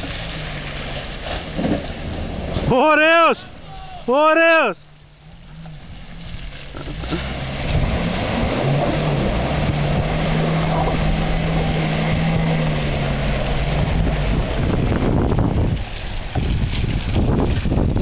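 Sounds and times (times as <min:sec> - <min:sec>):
engine working hard under load: 0:05.1 - 0:18.0.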